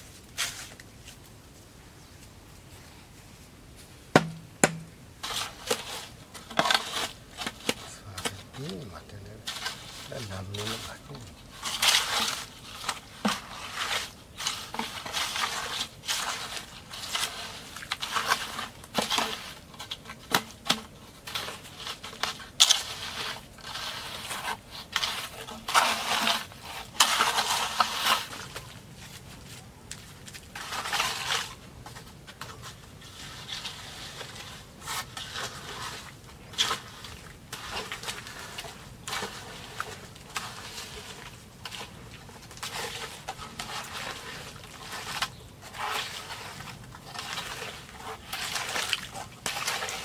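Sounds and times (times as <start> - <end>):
bamboo scraping and crackling: 0.0 - 50.0
sharp knocks on bamboo: 4.1 - 5.0.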